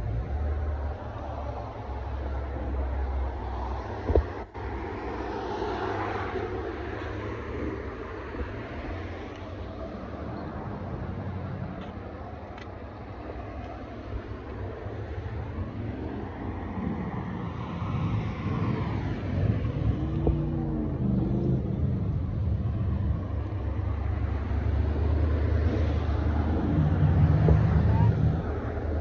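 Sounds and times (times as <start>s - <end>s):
wind on microphone: 13.0s - 29.0s.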